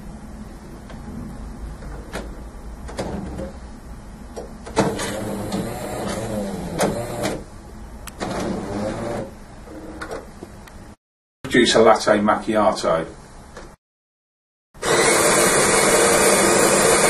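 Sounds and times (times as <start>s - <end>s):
motor whirring: 4.8s - 7.4s.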